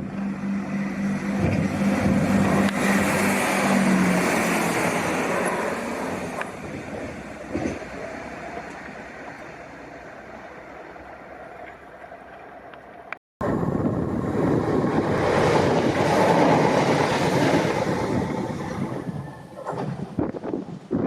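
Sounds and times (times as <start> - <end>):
train rumbling past: 0.0 - 21.0.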